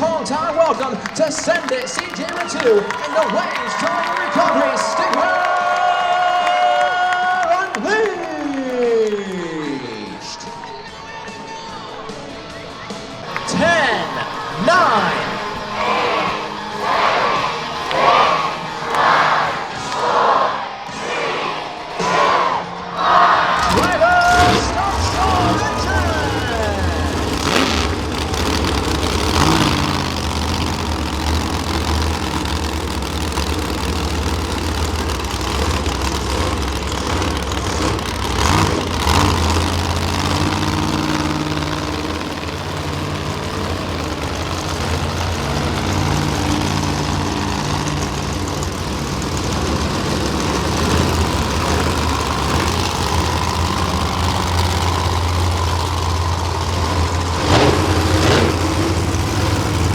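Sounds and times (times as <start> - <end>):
truck engines idling: 0.0 - 59.9
sharp cracks: 23.6 - 59.9.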